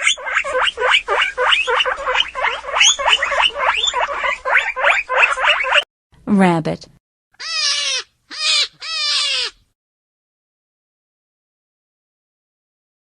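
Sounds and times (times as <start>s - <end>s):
guinea pig squeaking: 0.0s - 5.9s, 7.4s - 9.6s.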